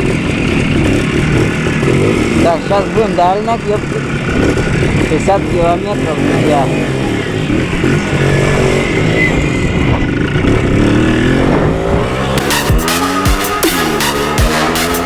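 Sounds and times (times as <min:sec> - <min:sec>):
motorcycle engine revving: 0:00.0 - 0:15.0
electronic dance music: 0:12.4 - 0:15.0.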